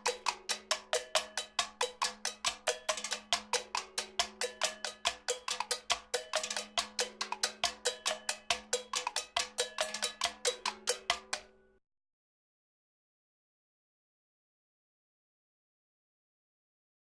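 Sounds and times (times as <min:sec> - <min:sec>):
metallic percussion strikes: 0:00.0 - 0:11.7.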